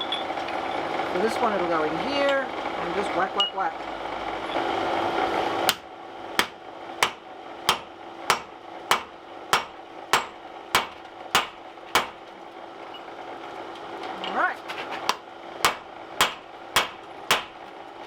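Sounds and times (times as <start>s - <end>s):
hammer striking steel punch: 5.7s - 12.3s, 15.1s - 17.6s.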